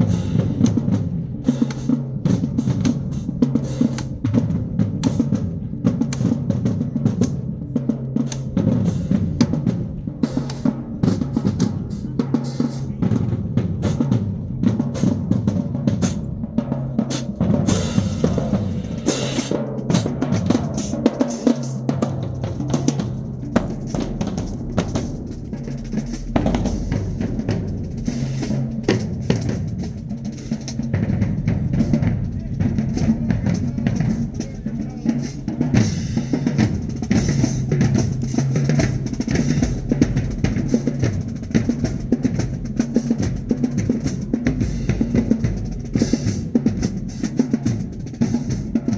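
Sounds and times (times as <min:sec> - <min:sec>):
booming bass drums: 0:00.0 - 0:48.9
snare drum strokes and rolls: 0:00.0 - 0:48.9
cymbal crashes: 0:17.1 - 0:20.1.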